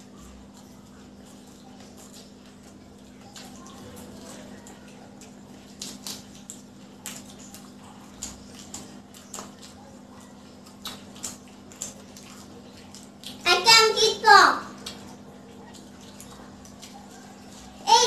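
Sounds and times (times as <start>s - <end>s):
chewing: 0.0s - 13.5s, 14.6s - 18.0s
wet mouth smacks: 10.7s - 13.4s.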